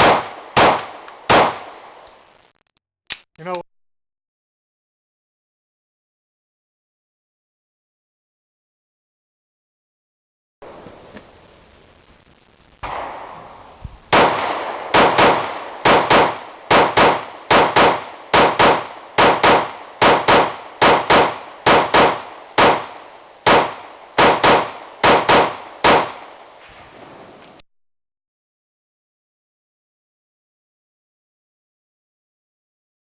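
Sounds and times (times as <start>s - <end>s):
pistol shots in pairs: 0.0s - 2.0s, 12.8s - 26.4s.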